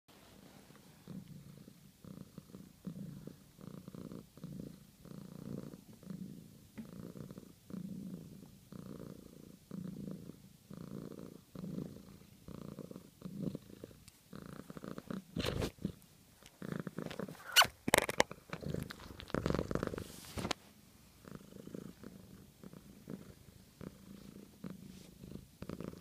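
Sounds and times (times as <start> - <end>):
cat purring: 0.2 - 26.0.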